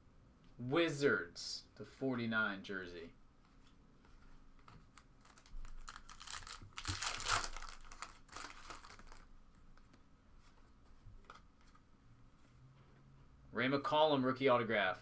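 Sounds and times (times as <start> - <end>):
plastic packaging crinkling: 4.9 - 9.9.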